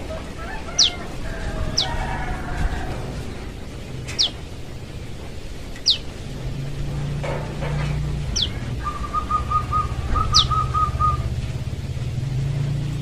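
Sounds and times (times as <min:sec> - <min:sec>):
low steady hum: 0:00.0 - 0:13.0
bird whistling falling notes: 0:08.3 - 0:11.4.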